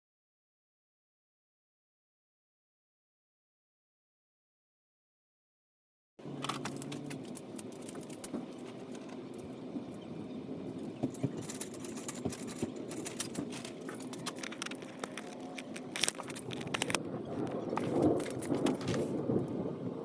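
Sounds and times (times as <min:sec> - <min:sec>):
light clicks and rattles: 0:06.4 - 0:10.1, 0:10.8 - 0:19.3.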